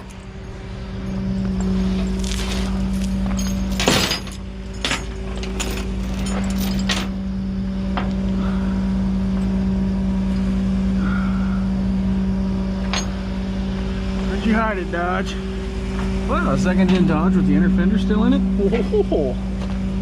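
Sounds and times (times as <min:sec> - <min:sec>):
vehicle engine droning: 0:00.0 - 0:20.0
metallic clanks and knocks: 0:03.3 - 0:07.2.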